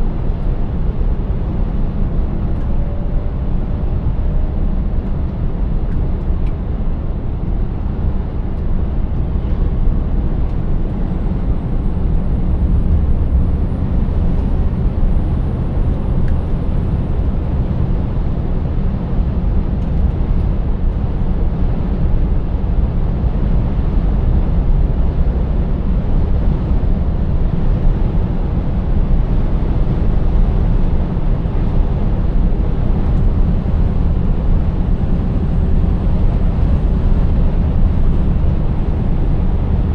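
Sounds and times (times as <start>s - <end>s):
road noise: 0.0s - 39.9s
truck diesel engine rumbling: 25.3s - 39.9s.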